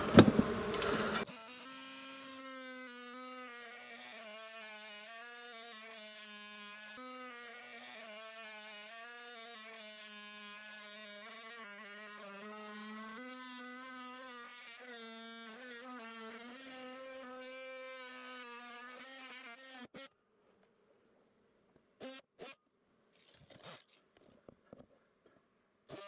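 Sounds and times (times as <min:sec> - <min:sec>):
oscillating saw cutting wall panel: 0:00.0 - 0:20.2, 0:22.0 - 0:22.6.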